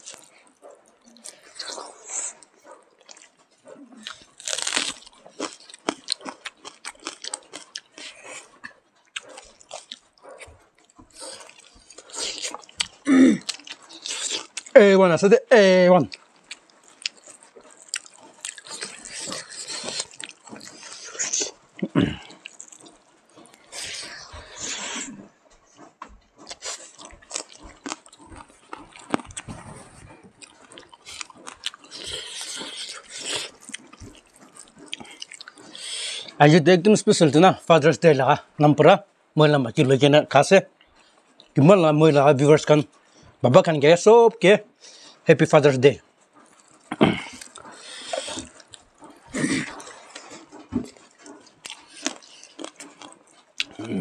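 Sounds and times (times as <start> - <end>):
biting clicks: 0.0 - 14.8, 16.0 - 36.4, 46.3 - 54.0
chewing with crunching: 0.0 - 43.8, 44.4 - 54.0
wet mouth clicks: 26.4 - 36.4, 46.5 - 54.0.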